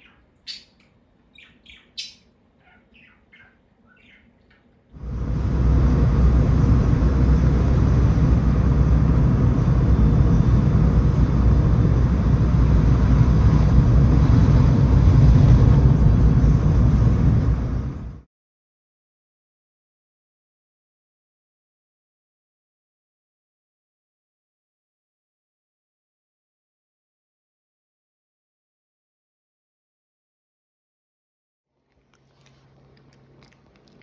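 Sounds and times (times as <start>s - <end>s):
birds chirping: 0.0s - 9.0s
loud steady rumbling: 5.0s - 18.2s.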